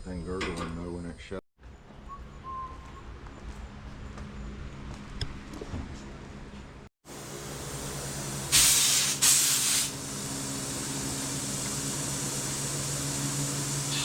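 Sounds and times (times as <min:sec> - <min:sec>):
pressurized gas hissing: 0:08.5 - 0:14.0.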